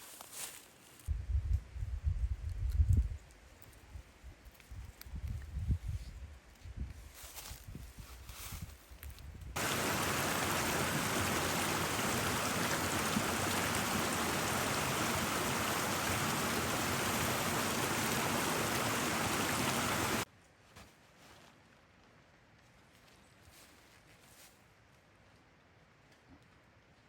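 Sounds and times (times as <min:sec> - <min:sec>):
rushing water: 0:09.6 - 0:20.3.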